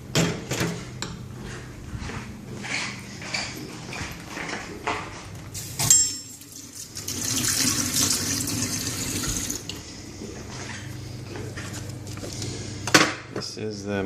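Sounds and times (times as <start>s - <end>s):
tap running: 7.0s - 9.8s.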